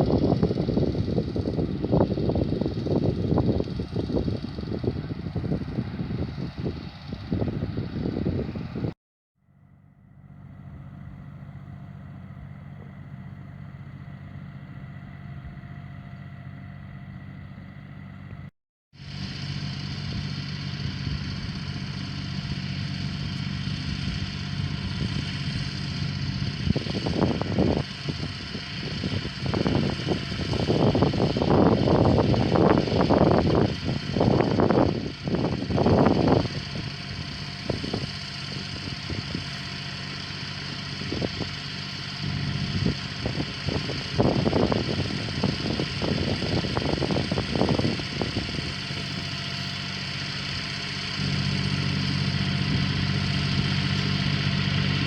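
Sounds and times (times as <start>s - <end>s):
wind buffeting microphone: 0.0s - 9.0s, 20.0s - 49.5s
engine running steadily: 0.0s - 55.0s.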